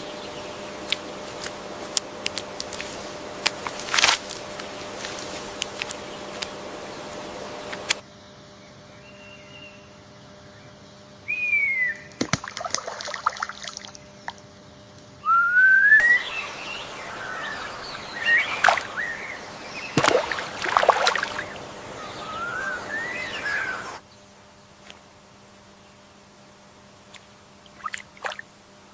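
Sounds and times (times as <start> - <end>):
birds whistling: 8.9 - 10.0, 10.6 - 12.2, 15.2 - 24.0.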